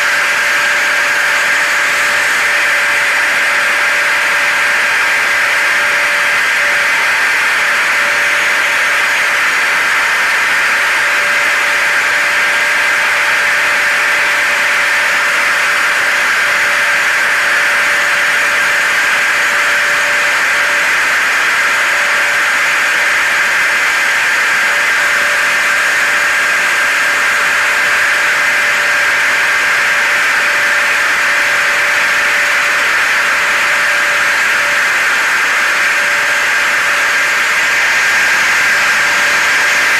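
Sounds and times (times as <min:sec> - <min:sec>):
hair dryer running: 0:00.0 - 0:39.9
vacuum cleaner running: 0:00.0 - 0:39.9.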